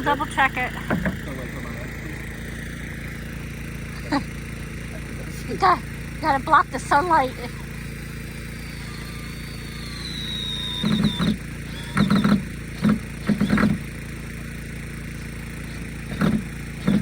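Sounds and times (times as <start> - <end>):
motor hum: 0.0 - 17.0
power drill driving fasteners: 7.3 - 17.0.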